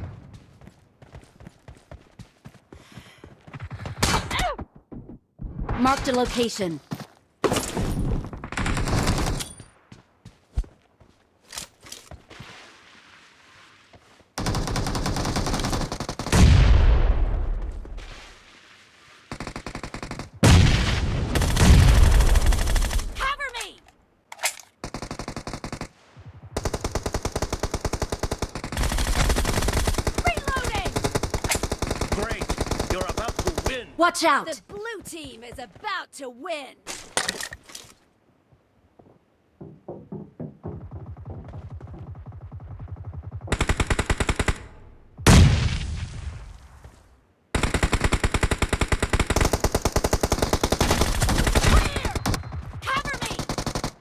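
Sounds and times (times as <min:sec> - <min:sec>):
video game automatic gunfire: 0:26.6 - 0:33.8.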